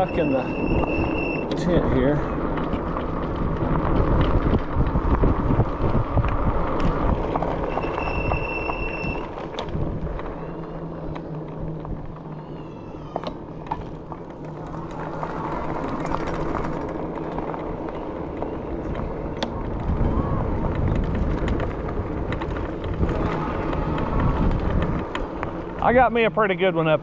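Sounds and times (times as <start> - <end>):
high steady squeal: 0.0 - 1.9, 7.6 - 20.4
vehicle road rumble: 0.0 - 27.0.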